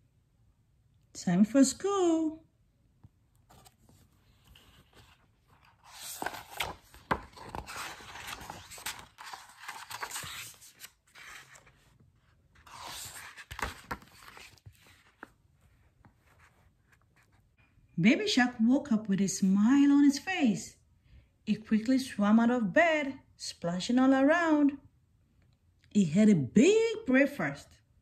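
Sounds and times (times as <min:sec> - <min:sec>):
book pages rustling: 0:03.0 - 0:17.6.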